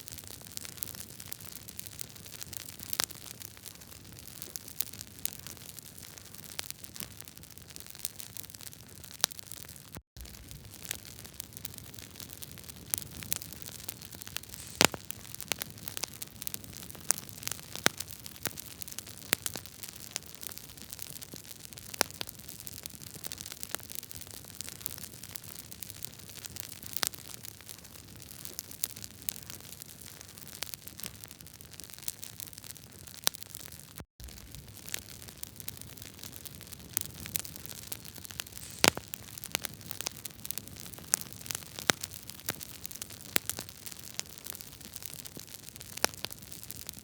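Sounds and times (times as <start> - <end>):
fire crackling and popping: 0.2 - 47.0
hiss of flames: 14.4 - 15.1, 38.4 - 39.2.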